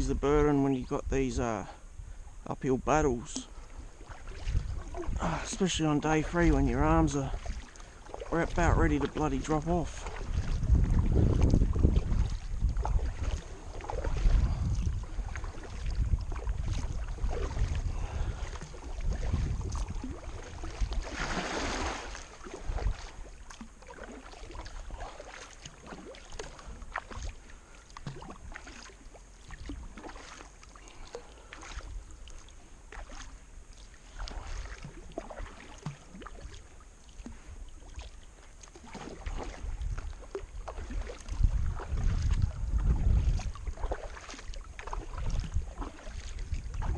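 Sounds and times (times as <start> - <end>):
low rumble on microphone: 0.0 - 25.2, 39.0 - 46.9
paddle strokes splashing: 3.0 - 46.9.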